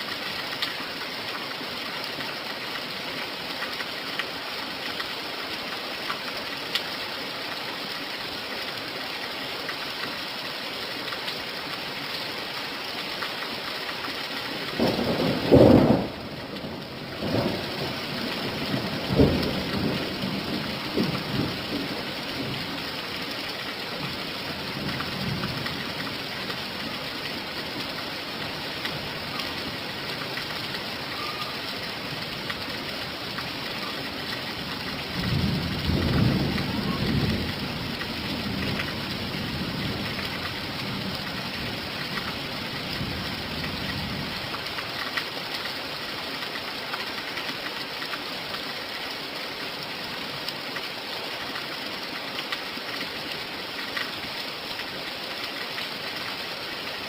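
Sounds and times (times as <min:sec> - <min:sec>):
steady rain falling: 0:00.0 - 0:57.0
thunder rumbling: 0:14.8 - 0:22.6, 0:35.1 - 0:40.1.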